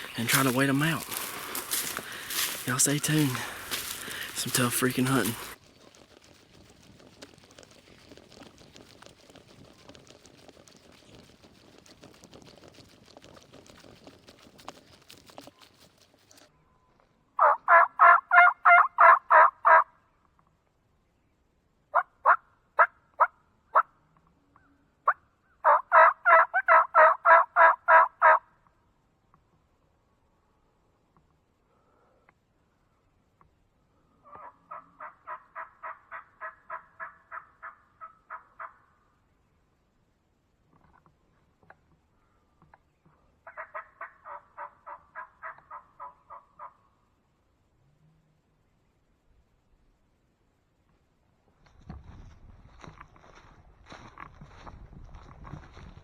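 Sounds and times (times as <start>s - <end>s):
turkey call yelps: 17.4s - 19.8s, 25.0s - 28.4s, 34.2s - 38.9s, 43.4s - 46.8s
turkey call clucks: 17.4s - 19.9s, 25.0s - 28.5s, 34.2s - 38.9s, 43.4s - 46.9s.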